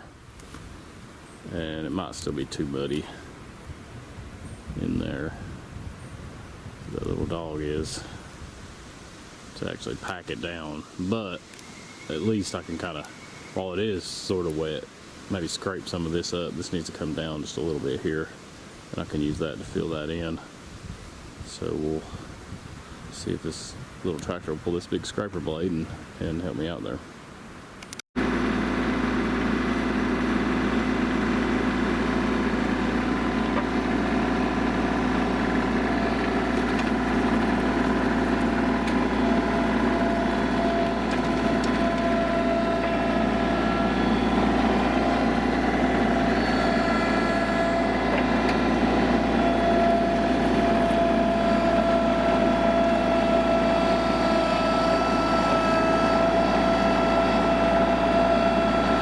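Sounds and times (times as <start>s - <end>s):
tractor diesel engine running: 1.4s - 5.6s, 6.9s - 8.3s, 9.6s - 14.8s, 28.2s - 59.0s.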